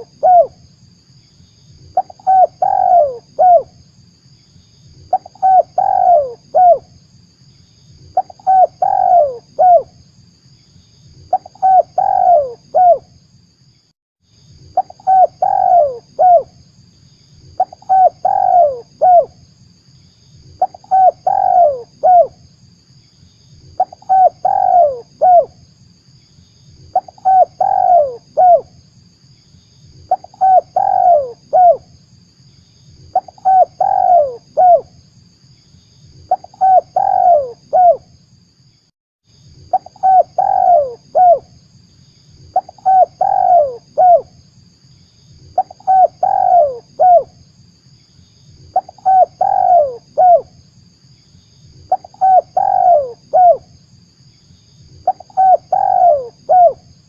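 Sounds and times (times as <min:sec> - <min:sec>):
dove cooing: 0:00.0 - 0:00.6, 0:01.9 - 0:03.7, 0:05.1 - 0:06.8, 0:08.2 - 0:09.9, 0:11.3 - 0:13.0, 0:14.8 - 0:16.5, 0:17.6 - 0:19.3, 0:20.6 - 0:22.4, 0:23.8 - 0:25.5, 0:26.9 - 0:28.7, 0:30.1 - 0:31.8, 0:33.1 - 0:34.9, 0:36.3 - 0:38.0, 0:39.7 - 0:41.5, 0:42.5 - 0:44.3, 0:45.6 - 0:47.3, 0:48.7 - 0:50.6, 0:51.9 - 0:53.7, 0:55.0 - 0:56.8.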